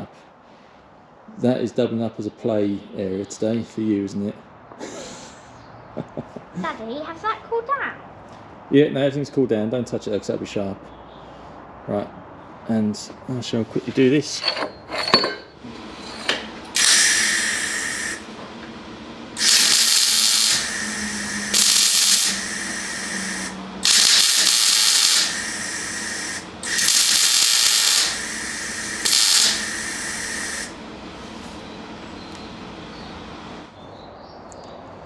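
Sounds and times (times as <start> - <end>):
spot welding crackling bursts: 15.6 - 33.7
steady welder hiss: 15.6 - 33.7.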